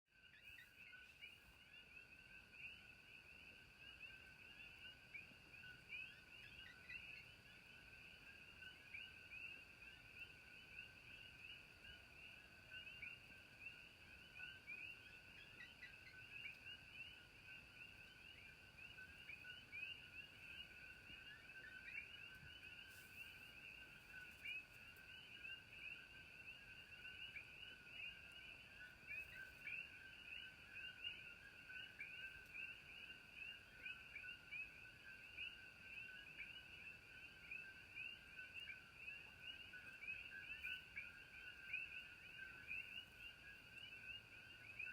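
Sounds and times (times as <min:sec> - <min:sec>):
faint high whine: 0:00.2 - 0:44.9.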